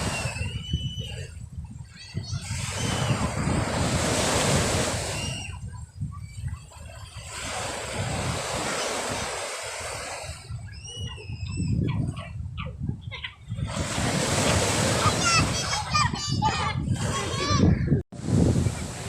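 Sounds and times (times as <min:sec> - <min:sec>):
sea waves surging on shore: 0:00.0 - 0:01.2, 0:02.4 - 0:10.7, 0:13.6 - 0:17.6, 0:18.2 - 0:19.0
wind buffeting microphone: 0:00.0 - 0:19.0.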